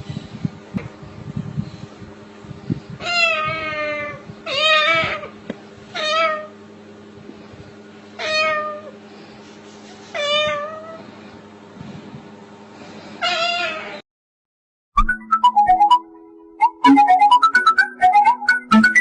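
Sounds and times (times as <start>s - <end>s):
steady low hum: 0.0s - 13.2s
cat meowing: 3.0s - 5.3s, 6.0s - 6.5s, 8.2s - 9.0s, 10.1s - 11.0s, 13.2s - 14.0s.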